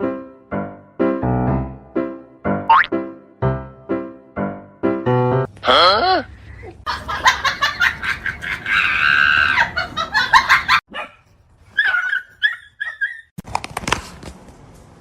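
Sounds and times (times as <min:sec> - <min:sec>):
dog whining and yipping: 0:11.8 - 0:13.4.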